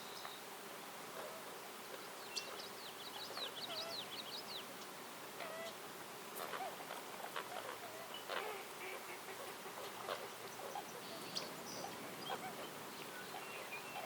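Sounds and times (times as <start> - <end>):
songbird twittering: 2.2 - 4.9, 6.6 - 14.0.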